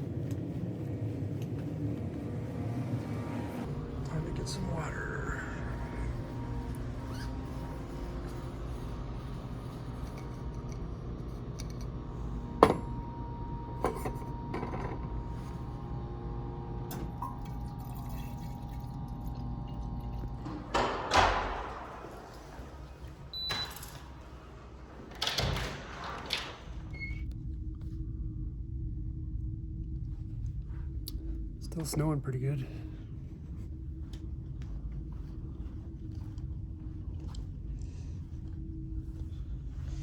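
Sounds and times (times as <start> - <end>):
mechanical hum: 0.0 - 40.0
water dispensed into container: 17.0 - 20.4.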